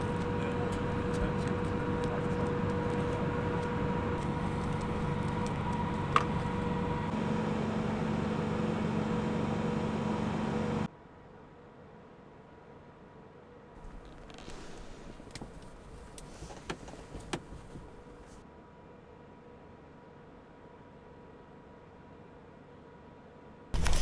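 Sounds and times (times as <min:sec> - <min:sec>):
faint steady hum: 0:00.0 - 0:07.7
van driving rumble: 0:00.0 - 0:10.9, 0:13.8 - 0:18.4, 0:23.8 - 0:24.0.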